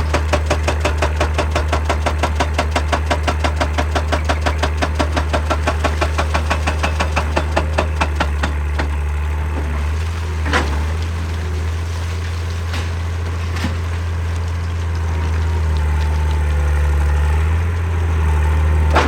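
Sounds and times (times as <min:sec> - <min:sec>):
hydraulic breaker hammering rock: 0:00.0 - 0:11.0, 0:18.8 - 0:19.0
diesel engine running: 0:00.0 - 0:19.0.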